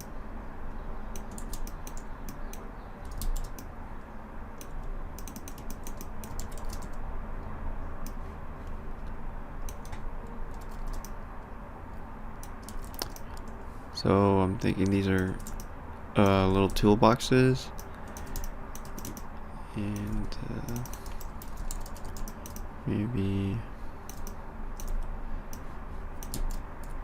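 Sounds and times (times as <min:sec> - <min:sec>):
steady low hum: 0:00.0 - 0:27.0
keyboard keys typing: 0:01.1 - 0:03.7, 0:04.6 - 0:07.0, 0:08.0 - 0:11.2, 0:12.4 - 0:13.6, 0:14.8 - 0:16.9, 0:17.7 - 0:22.7, 0:24.1 - 0:27.0
mouse clicks: 0:04.6 - 0:06.9, 0:12.4 - 0:13.6.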